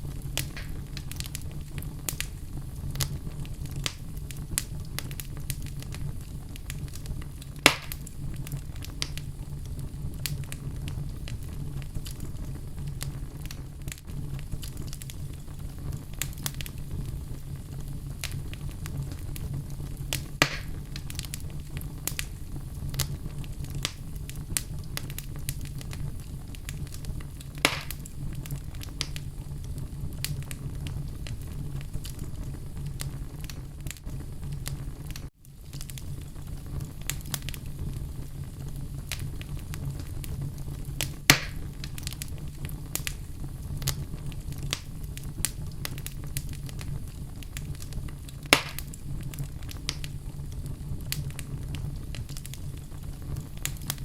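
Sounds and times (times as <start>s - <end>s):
fire crackling and popping: 0.0s - 54.0s
fire rumbling: 0.0s - 54.0s.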